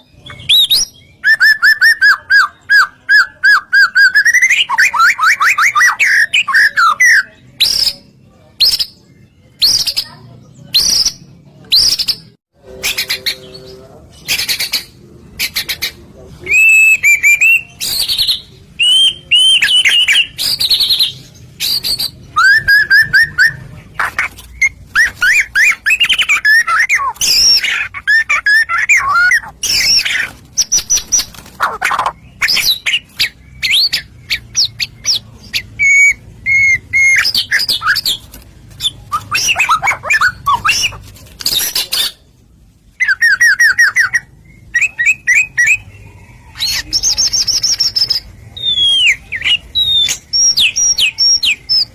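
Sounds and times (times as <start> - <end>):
bird singing whistled phrases: 0.0 - 8.9, 16.4 - 23.6, 31.9 - 38.2, 43.0 - 51.9.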